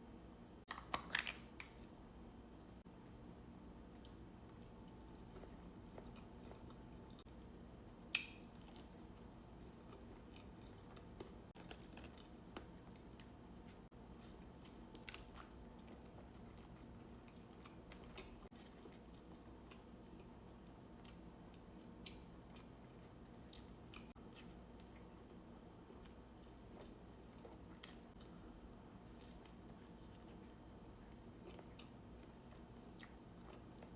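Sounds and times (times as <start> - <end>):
chewing and biting food: 5.1 - 7.4.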